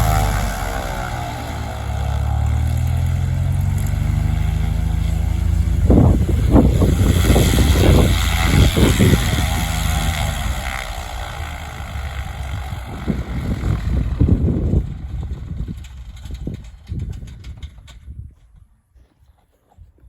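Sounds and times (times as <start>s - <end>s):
propeller airplane passing: 0.0s - 18.0s.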